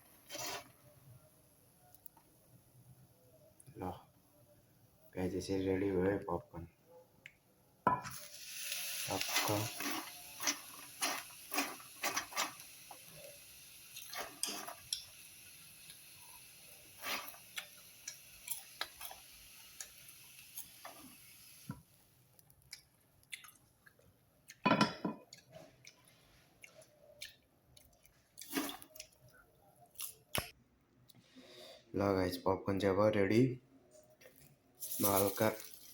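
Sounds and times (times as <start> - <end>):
steady hiss: 8.1 - 22.1, 34.8 - 35.9.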